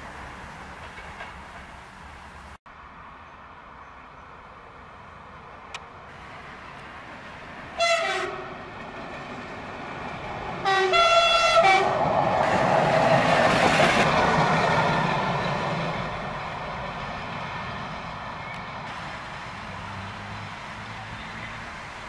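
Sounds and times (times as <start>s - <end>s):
railcar passing close by: 0.0s - 2.6s, 6.0s - 22.0s
railcar horn blasts: 7.8s - 8.6s, 10.6s - 12.1s.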